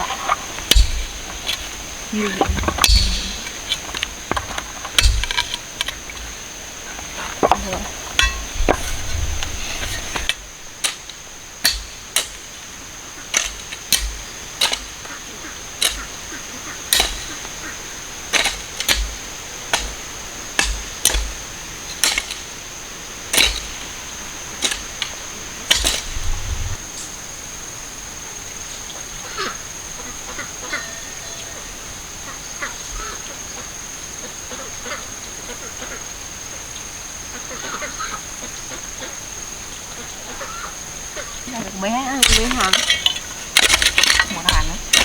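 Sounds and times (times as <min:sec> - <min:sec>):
hand tool chopping: 0:00.6 - 0:01.7, 0:02.3 - 0:05.6, 0:10.2 - 0:12.4, 0:13.3 - 0:15.0, 0:16.9 - 0:17.5, 0:18.3 - 0:22.5, 0:23.3 - 0:23.9, 0:24.6 - 0:26.2, 0:41.6 - 0:45.0.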